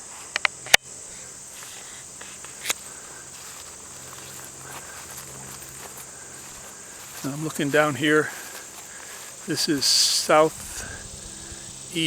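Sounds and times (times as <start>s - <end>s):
insects chirping chorus: 0.0s - 12.0s
sharp click: 0.3s - 0.8s.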